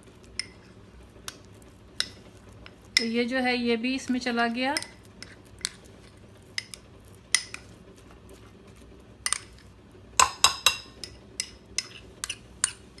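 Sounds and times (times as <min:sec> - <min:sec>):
utensils knocking against a bowl: 0:10.2 - 0:11.9.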